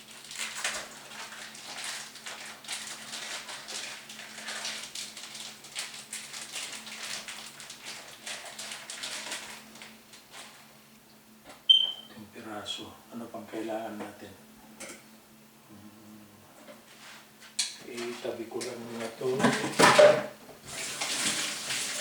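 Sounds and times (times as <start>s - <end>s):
plastic wrapping crinkling: 0.0s - 10.7s.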